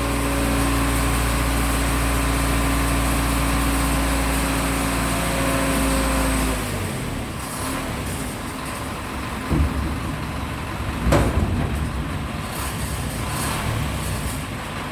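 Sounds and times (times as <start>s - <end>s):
truck engine running: 0.0s - 14.9s
load tipping out rumbling: 7.2s - 14.9s
heavy thumps of load: 9.2s - 14.4s.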